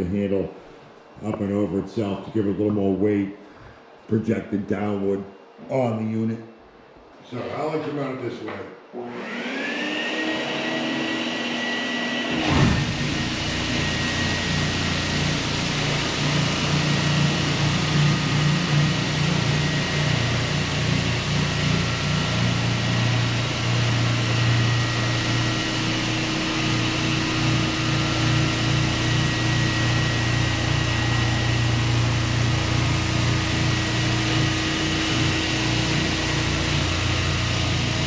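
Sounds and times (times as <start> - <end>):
floor sander motor whine: 8.9 - 38.0.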